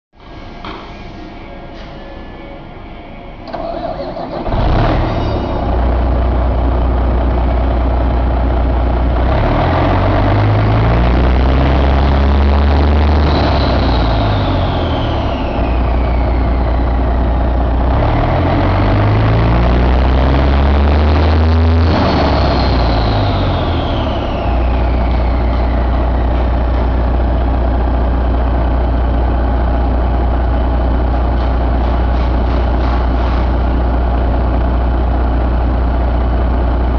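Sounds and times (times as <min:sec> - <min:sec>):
turbocharger whine: 0:00.2 - 0:36.9
diesel engine idling and revving: 0:02.6 - 0:36.9
diesel engine starter cranking: 0:03.4 - 0:06.3.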